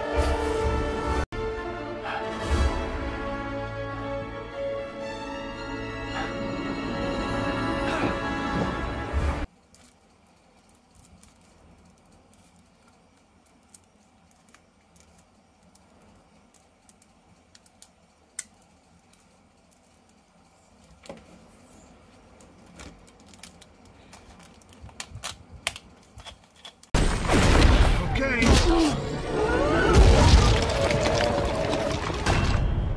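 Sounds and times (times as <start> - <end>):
packaging handled: 22.0 - 26.9.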